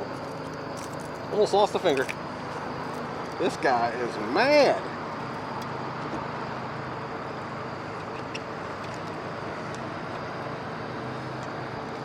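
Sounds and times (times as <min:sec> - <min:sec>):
boat motor running: 0:00.0 - 0:12.0
wind: 0:00.0 - 0:12.0.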